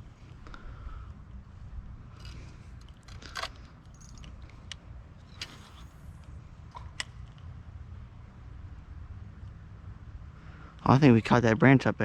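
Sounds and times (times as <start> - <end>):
short light rattles: 2.1 - 6.2.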